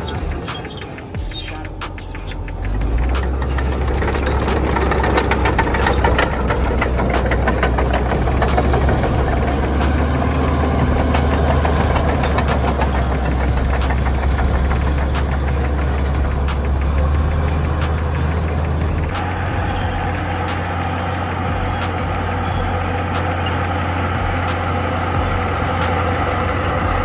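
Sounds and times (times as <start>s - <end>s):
bulldozer diesel engine running: 0.0s - 27.0s
metallic clanks from machine: 1.8s - 19.2s.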